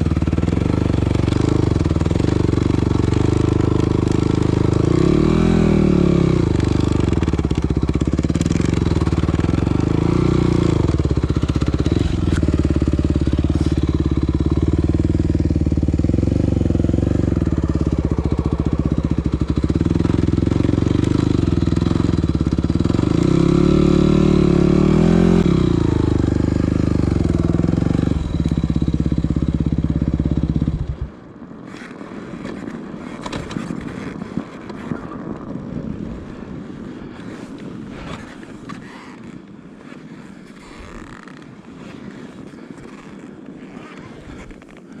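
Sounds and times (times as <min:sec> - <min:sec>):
motorcycle engine revving: 0:00.0 - 0:31.1
wind noise: 0:29.9 - 0:45.0.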